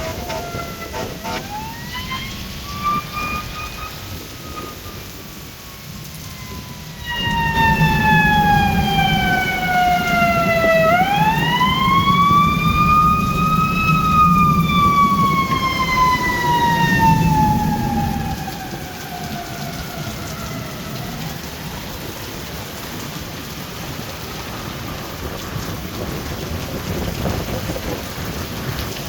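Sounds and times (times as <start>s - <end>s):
siren wailing: 0.0s - 22.8s.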